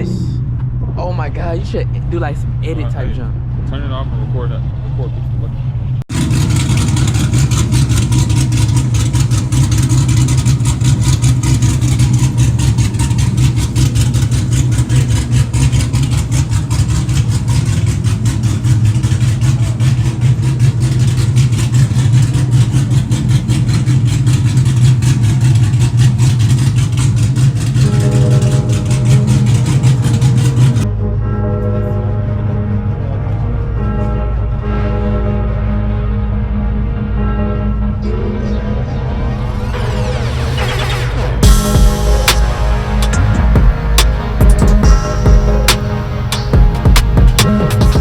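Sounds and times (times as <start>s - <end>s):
car engine running: 0.0s - 48.0s
faint steady tones: 27.6s - 48.0s.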